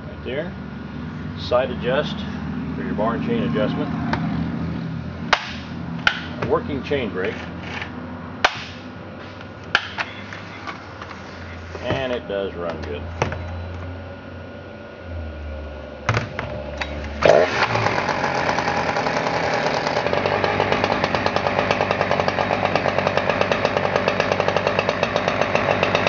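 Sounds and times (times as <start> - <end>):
chainsaw idling and revving: 1.5 - 9.0, 16.6 - 26.0.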